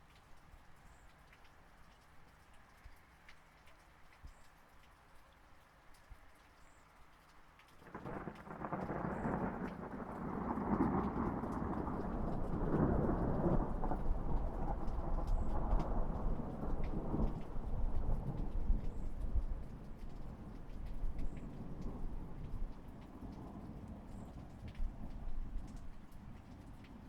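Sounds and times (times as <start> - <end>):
light rain patter: 0.0 - 27.0
rolling thunder rumble: 7.9 - 26.4.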